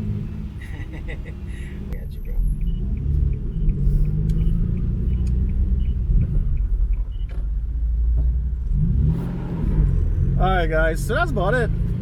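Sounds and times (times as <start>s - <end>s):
car engine rumbling and revving: 0.0s - 12.0s.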